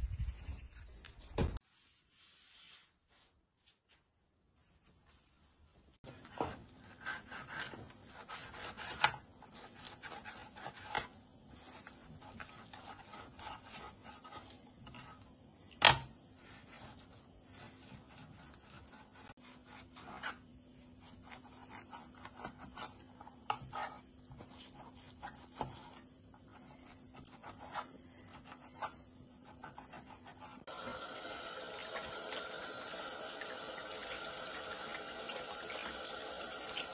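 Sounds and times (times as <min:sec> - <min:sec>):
rubbing and scraping: 0:06.2 - 0:15.2.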